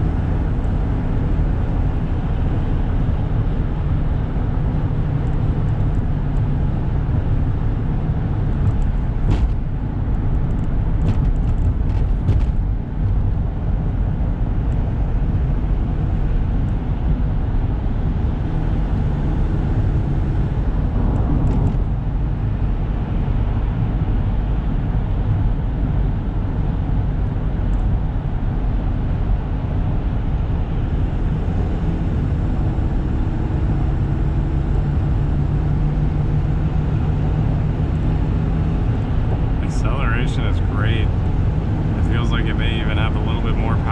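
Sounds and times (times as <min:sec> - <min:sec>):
road noise: 0:00.0 - 0:43.9
diesel engine running: 0:29.2 - 0:43.9.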